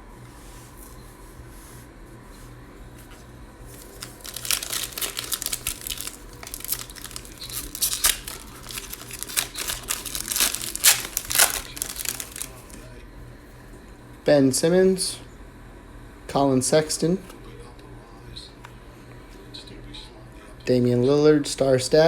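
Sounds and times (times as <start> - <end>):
card pack wrapper tearing and crinkling: 3.7 - 12.8.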